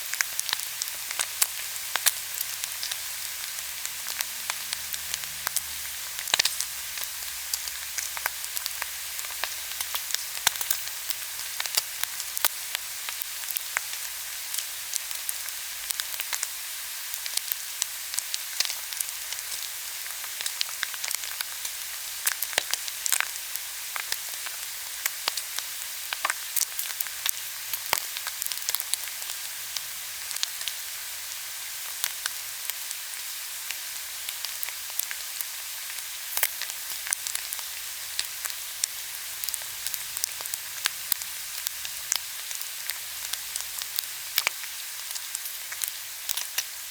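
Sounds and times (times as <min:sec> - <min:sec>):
fat crackling and popping: 0:00.0 - 0:16.5, 0:34.3 - 0:46.7
meat sizzling on a grill: 0:00.0 - 0:46.9.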